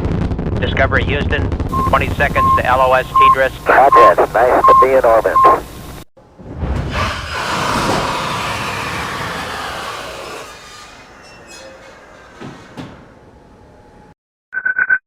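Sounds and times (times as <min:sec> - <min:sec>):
rushing noise sliding down in pitch: 0:06.2 - 0:10.8.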